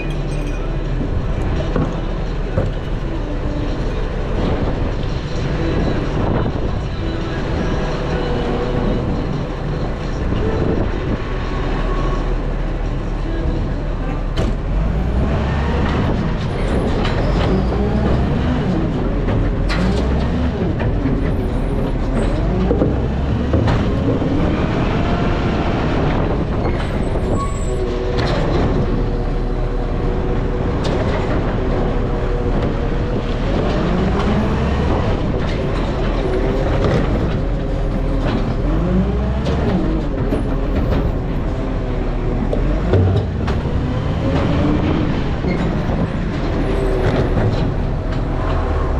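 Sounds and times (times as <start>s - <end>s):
garbage truck diesel engine: 0.0s - 48.9s
knocks and rattles: 15.6s - 48.9s.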